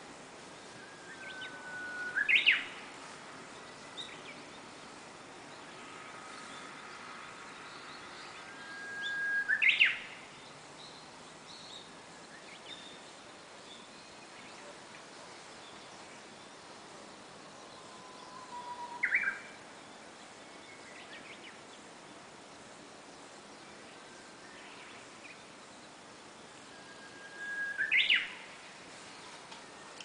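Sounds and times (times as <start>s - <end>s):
faint high bird chirps: 0.6s - 2.8s, 7.7s - 10.2s, 17.6s - 19.6s, 26.6s - 30.0s
bird whistling song: 0.7s - 2.8s, 8.4s - 10.2s, 17.8s - 19.6s, 26.7s - 28.5s.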